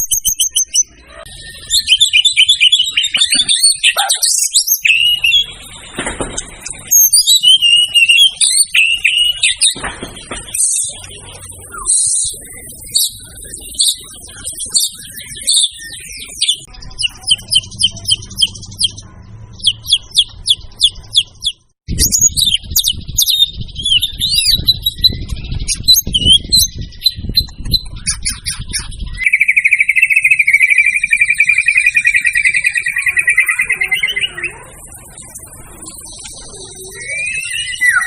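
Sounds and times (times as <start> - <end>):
bird singing fast varied song: 0.0 - 38.0
buzzy bird trill: 0.0 - 38.0.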